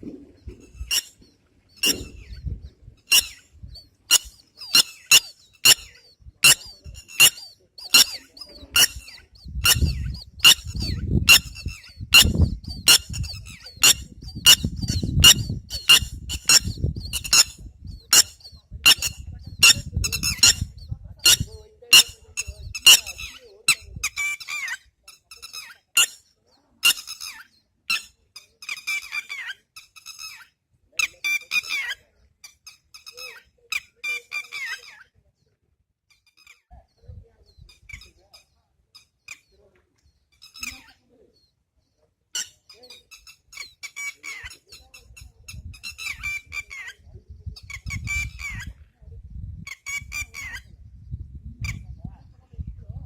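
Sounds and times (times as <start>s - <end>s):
water birds squeaky calls: 0.3s - 35.1s, 40.4s - 41.0s, 42.4s - 47.0s, 47.6s - 48.8s.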